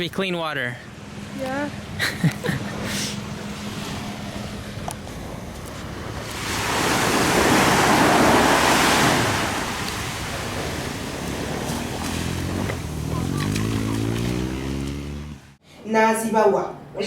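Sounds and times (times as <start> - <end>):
sea wave washing up beach: 5.3 - 14.7.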